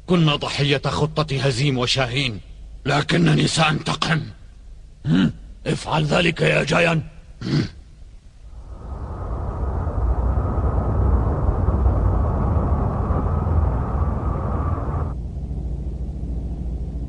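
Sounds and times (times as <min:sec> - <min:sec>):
faint rumble: 0:08.0 - 0:17.0
spaceship engine drone: 0:08.6 - 0:17.0.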